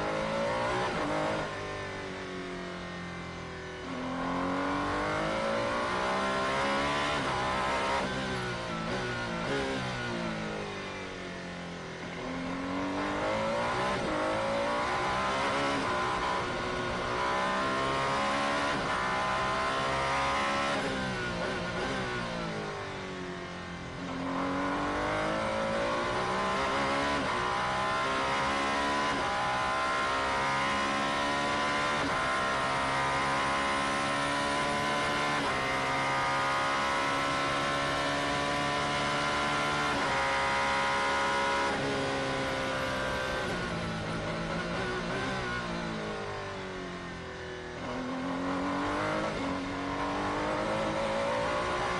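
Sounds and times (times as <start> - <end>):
race car engine revving: 12.2 - 22.3, 47.8 - 51.9.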